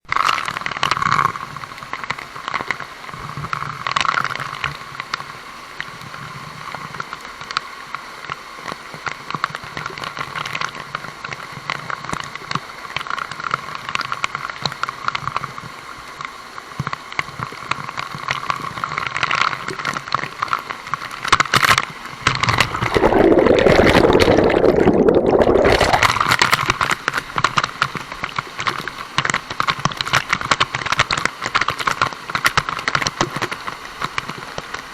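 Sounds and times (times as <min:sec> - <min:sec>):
waterfall rushing and splashing: 0:04.6 - 0:34.9.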